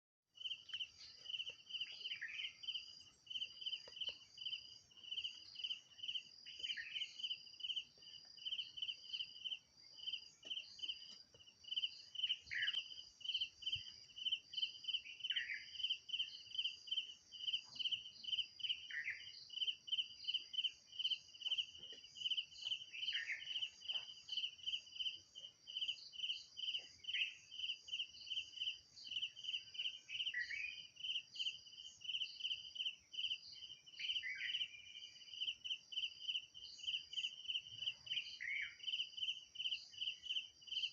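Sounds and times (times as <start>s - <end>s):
insects chirping: 0.4s - 40.9s.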